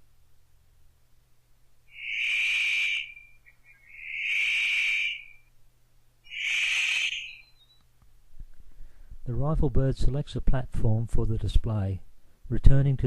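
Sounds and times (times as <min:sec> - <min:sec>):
bird harsh calls: 0:01.9 - 0:05.5, 0:06.3 - 0:07.8.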